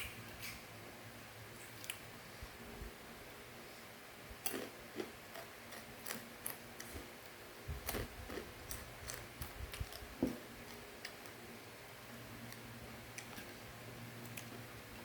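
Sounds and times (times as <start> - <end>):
person chewing crunchy snack: 4.4 - 7.1, 7.8 - 11.4.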